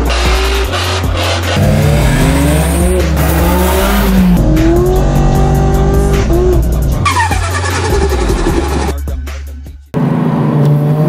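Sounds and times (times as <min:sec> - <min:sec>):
car engine revving: 0:00.0 - 0:08.9, 0:10.0 - 0:11.0
music with heavy bass line: 0:00.0 - 0:10.0
tire squeal: 0:07.0 - 0:08.9.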